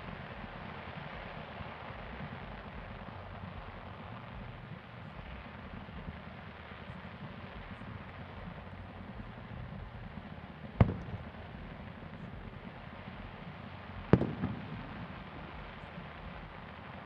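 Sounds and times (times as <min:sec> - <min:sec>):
faint crackles: 0:00.0 - 0:17.0
low rumble and hiss: 0:00.0 - 0:17.0
firework bang: 0:06.9 - 0:16.8.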